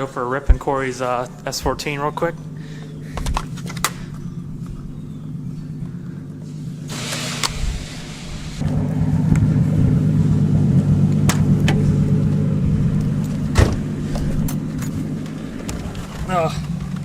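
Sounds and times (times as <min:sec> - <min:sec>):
car engine idling: 0:00.0 - 0:17.0
sharp engine clicks: 0:02.2 - 0:05.1.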